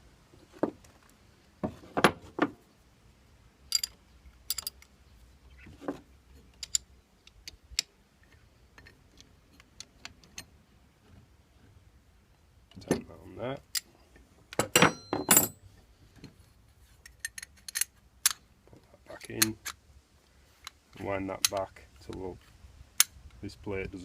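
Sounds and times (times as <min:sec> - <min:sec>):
metal spanners clinking: 0:14.6 - 0:15.6.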